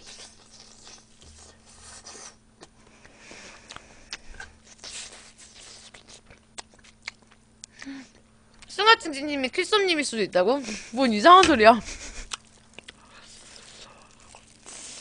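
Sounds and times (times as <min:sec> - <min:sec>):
chewing food: 0:00.0 - 0:07.9, 0:12.2 - 0:15.0.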